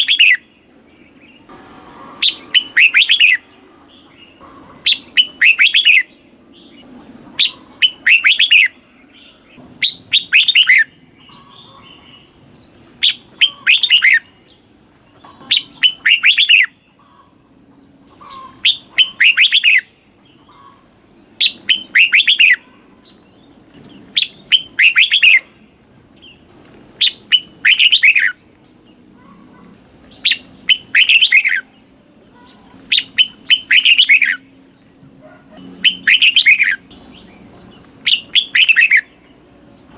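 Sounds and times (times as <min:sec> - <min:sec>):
bird singing whistled notes: 0:00.0 - 0:00.5, 0:02.2 - 0:03.6, 0:04.9 - 0:06.8, 0:07.4 - 0:11.8, 0:12.6 - 0:14.6, 0:15.4 - 0:16.8, 0:18.2 - 0:20.8, 0:21.4 - 0:26.4, 0:27.0 - 0:28.4, 0:29.2 - 0:34.6, 0:35.2 - 0:39.9.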